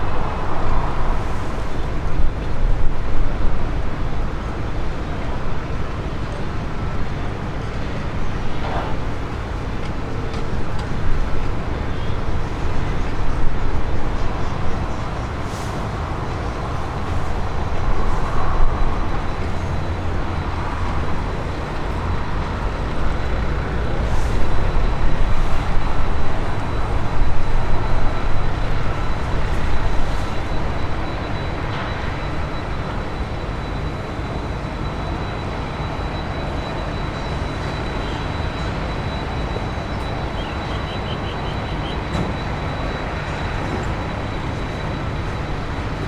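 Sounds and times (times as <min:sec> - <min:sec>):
aircraft engines rumbling: 0:00.0 - 0:46.0
faint high whine: 0:00.0 - 0:46.0.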